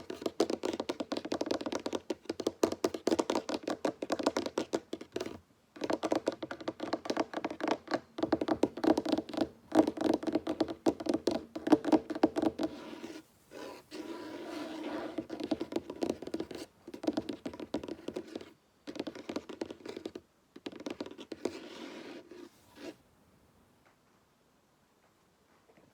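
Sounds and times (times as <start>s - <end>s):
fingers tapping on wooden table: 5.8s - 12.9s
scratching on wood: 6.8s - 23.0s.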